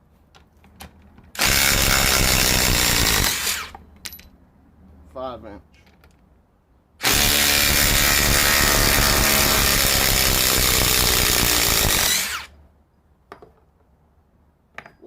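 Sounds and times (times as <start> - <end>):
impact driver hammering: 1.4 - 3.8, 7.0 - 12.5
motor winding down whine: 7.0 - 12.5.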